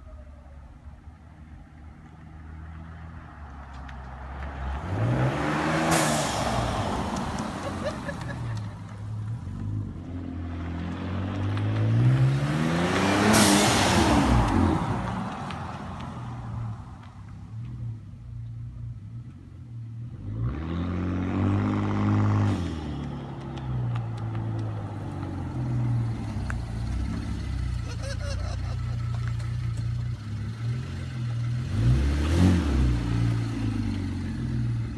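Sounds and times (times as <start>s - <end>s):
car engine revving: 20.0s - 34.9s.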